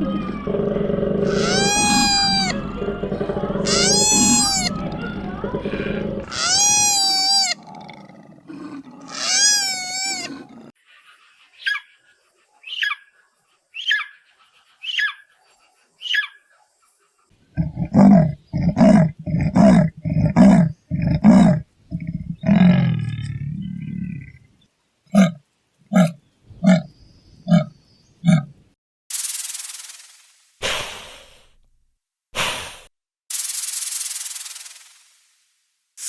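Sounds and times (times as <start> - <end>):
animal calls: 0.0 - 13.1.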